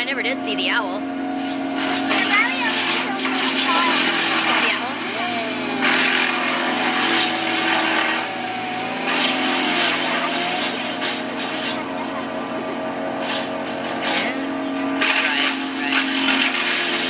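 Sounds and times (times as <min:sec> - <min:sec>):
small engine droning: 0:00.0 - 0:17.0.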